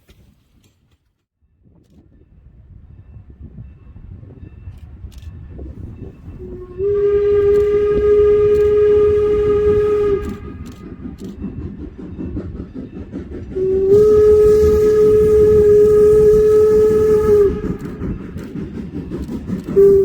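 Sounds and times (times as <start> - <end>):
steam train rumbling: 2.0 - 20.0
steam whistle blasts: 6.4 - 11.3, 13.6 - 18.4, 19.8 - 20.0.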